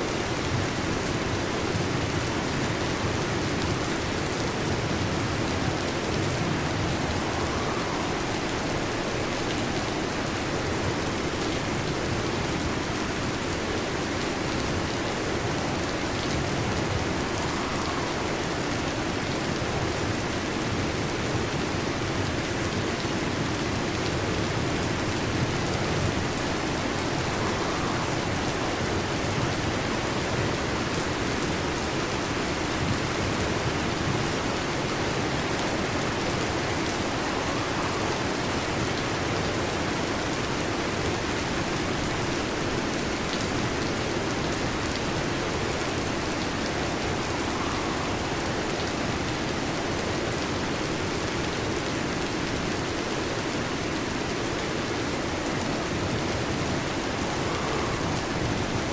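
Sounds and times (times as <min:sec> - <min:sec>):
heavy rain on a metal roof: 0:00.0 - 0:58.9.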